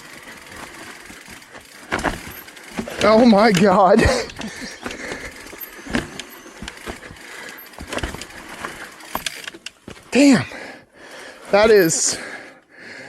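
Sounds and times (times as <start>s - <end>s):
bike knocks and rattles: 0.0s - 10.3s
bike tyres scraping on rock: 0.0s - 10.4s, 11.2s - 12.3s.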